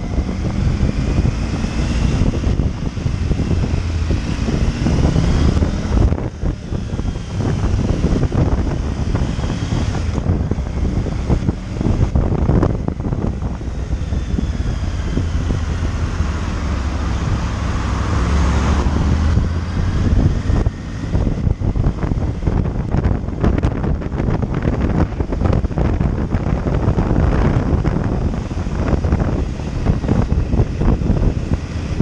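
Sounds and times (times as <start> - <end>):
motorcycle engine running: 0.0 - 32.0
wind buffeting microphone: 0.0 - 32.0.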